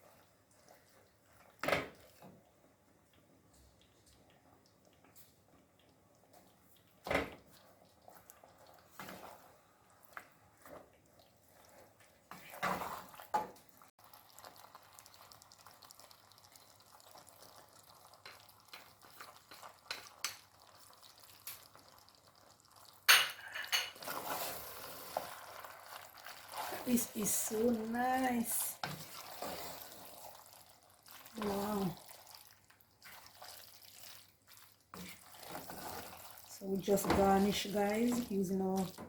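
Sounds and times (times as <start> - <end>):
utensil scraping a pan: 23.5 - 25.4, 28.4 - 30.2.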